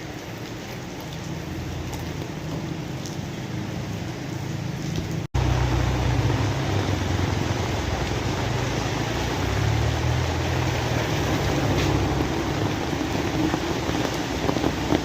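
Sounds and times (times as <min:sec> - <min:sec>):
rain falling: 0:00.0 - 0:15.0
low rumble: 0:05.3 - 0:15.0.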